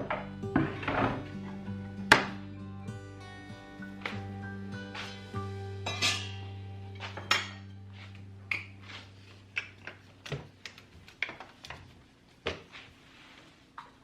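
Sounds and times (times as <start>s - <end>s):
dishes and cutlery clinking: 0.0s - 2.3s, 5.8s - 9.0s.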